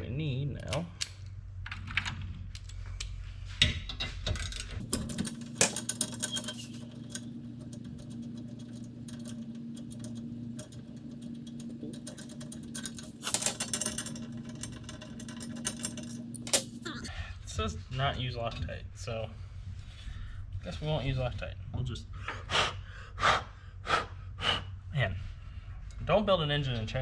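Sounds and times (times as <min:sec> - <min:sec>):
metal parts and tools clinking: 0:04.2 - 0:17.1
clatter: 0:04.4 - 0:17.0
steady low hum: 0:04.4 - 0:17.8.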